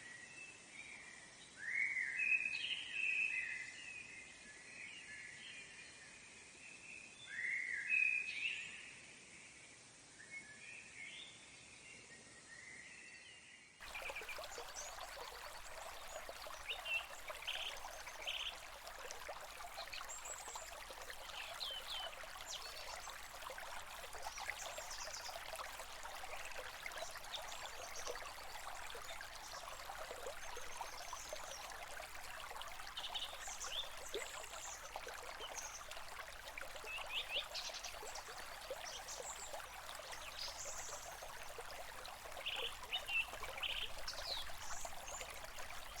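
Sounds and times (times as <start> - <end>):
stream running: 13.8 - 46.0.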